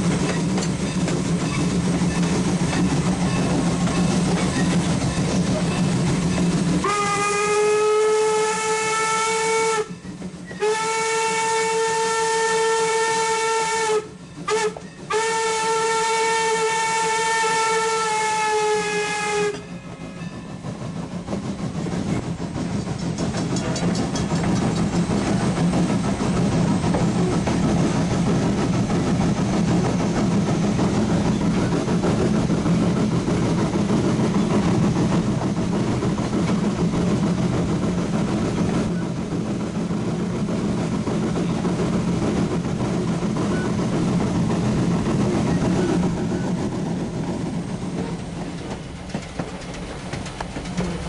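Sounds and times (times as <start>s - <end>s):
train wheels rumbling on rails: 0.0s - 51.0s.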